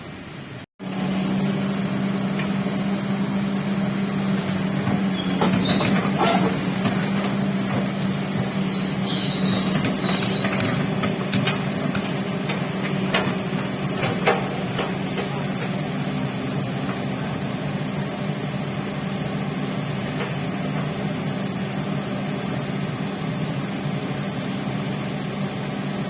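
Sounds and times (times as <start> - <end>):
construction machine engine humming: 0.0 - 26.0
knocks and clanks: 4.4 - 15.9.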